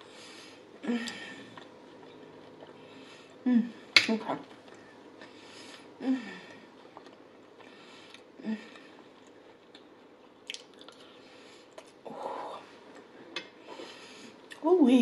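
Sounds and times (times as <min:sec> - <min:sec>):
person chewing food: 0:00.6 - 0:03.4, 0:04.4 - 0:12.1
small mouth clicks: 0:09.7 - 0:11.0.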